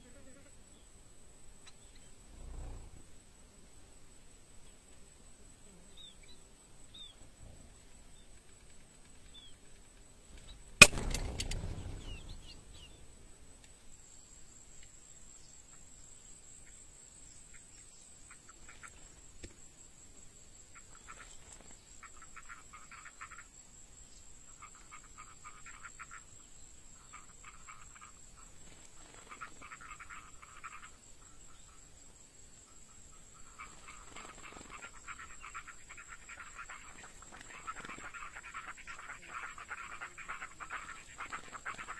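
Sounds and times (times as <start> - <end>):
faint bird chirps: 0.0 - 3.2, 5.5 - 41.9
rapid trilling bird calls: 10.3 - 13.2, 32.7 - 41.9
faint high whine: 10.3 - 15.5
bird trap snapping shut: 10.4 - 12.6.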